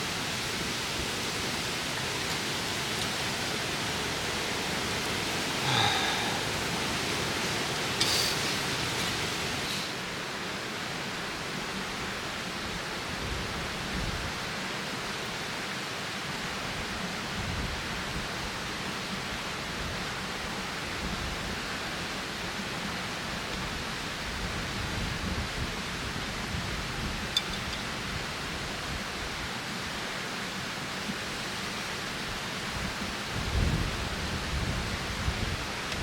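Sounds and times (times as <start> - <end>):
strong wind blowing: 0.8 - 10.0, 33.3 - 35.8
wind gusts on microphone: 24.2 - 29.4, 32.7 - 36.0.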